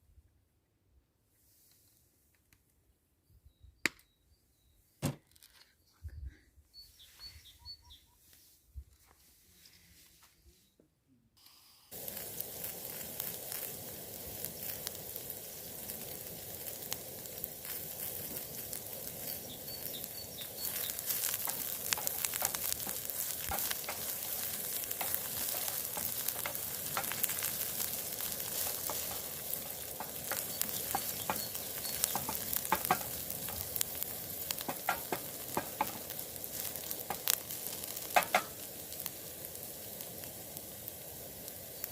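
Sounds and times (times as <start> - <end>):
faint bird chirps: 3.2 - 5.0, 5.6 - 8.6, 19.2 - 21.1, 30.3 - 32.4
food sizzling in a hot pan: 11.4 - 41.9.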